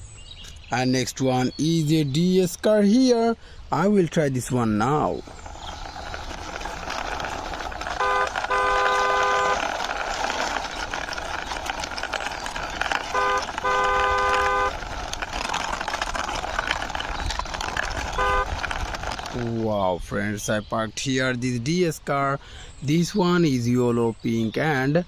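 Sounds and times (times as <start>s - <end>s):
car horn beeps: 8.0s - 9.6s, 13.1s - 14.7s, 18.2s - 18.5s.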